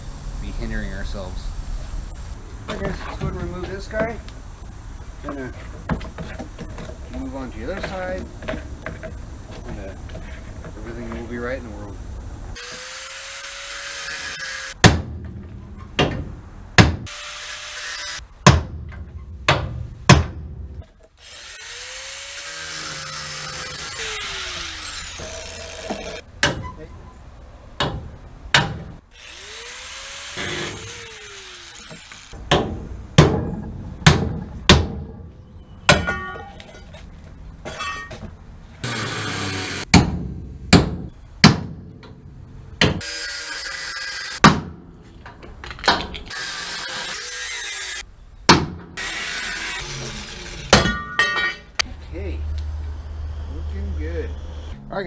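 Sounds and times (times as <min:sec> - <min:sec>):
power tool spinning: 0:21.2 - 0:26.2, 0:29.1 - 0:32.4
sharp metallic knocks: 0:31.9 - 0:36.6.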